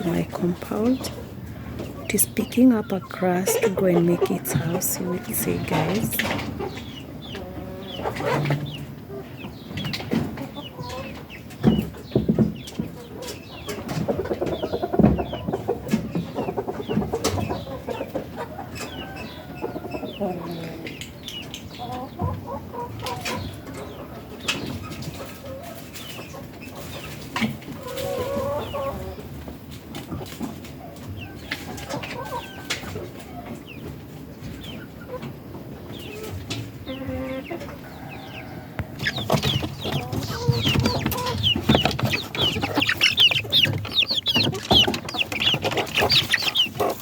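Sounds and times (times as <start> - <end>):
chickens clucking: 0.0 - 47.0
sharp clicks and knocks: 38.8 - 47.0.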